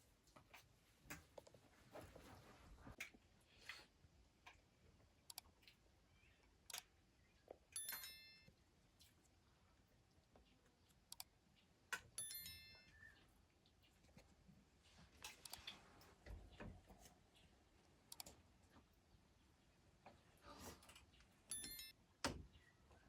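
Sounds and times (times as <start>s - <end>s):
faint scattered clicks: 10.1s - 14.2s, 15.2s - 16.2s, 16.9s - 19.1s.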